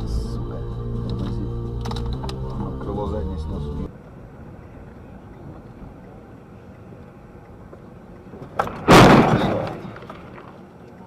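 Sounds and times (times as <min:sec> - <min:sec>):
vehicle running noise: 0:00.0 - 0:08.9
car collision crash: 0:08.6 - 0:10.5.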